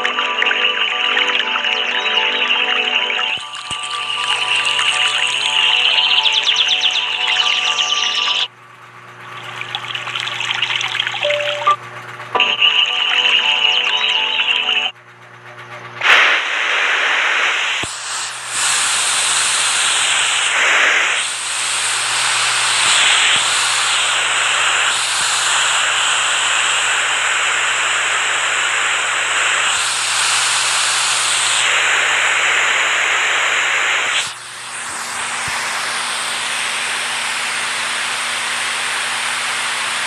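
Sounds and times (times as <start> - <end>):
rushing water: 9.2 - 11.7.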